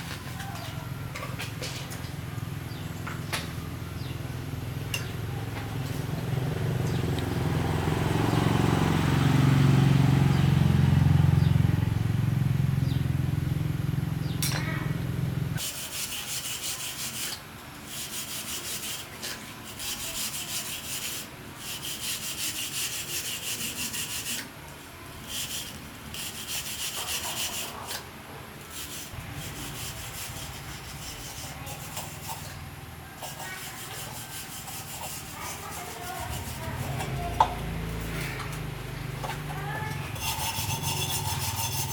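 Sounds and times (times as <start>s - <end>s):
abrasive sanding: 15.6s - 24.5s, 25.2s - 28.0s, 28.7s - 38.2s, 39.5s - 41.9s.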